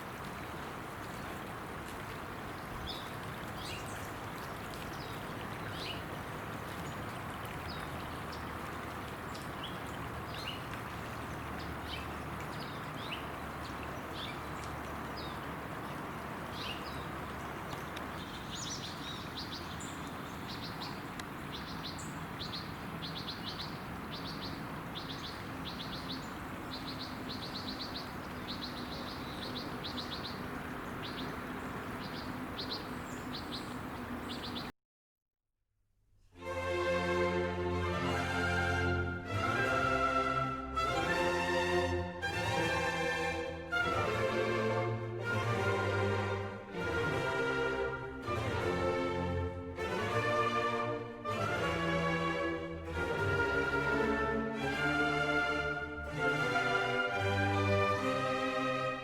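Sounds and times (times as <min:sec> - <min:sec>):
small birds chirping: 0:09.3 - 0:34.7.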